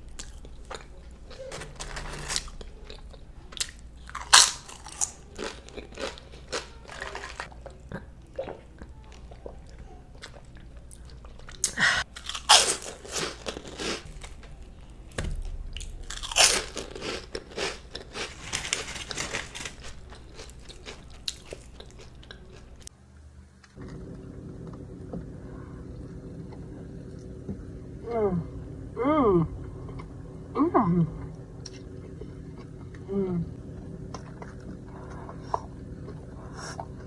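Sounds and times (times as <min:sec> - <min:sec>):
crunching bites of fried food: 0:00.2 - 0:07.6, 0:11.5 - 0:14.4, 0:15.8 - 0:22.9
low hum inside a car: 0:22.2 - 0:37.0.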